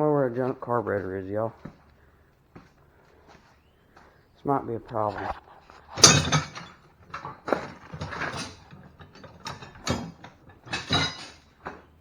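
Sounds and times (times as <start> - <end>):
small metal parts rattling: 5.9 - 12.0.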